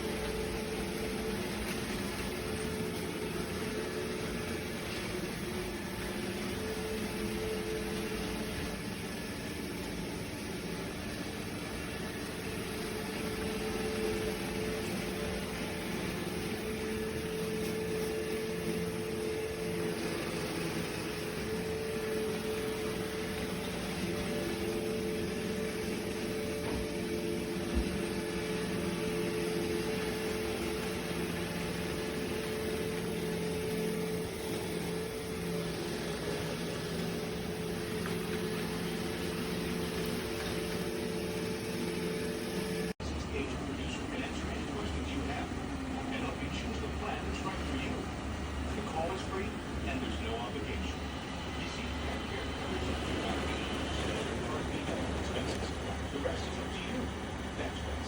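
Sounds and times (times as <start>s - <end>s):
robot vacuum motor hum: 0.0s - 43.0s, 44.1s - 58.0s
humming tones: 0.0s - 58.0s.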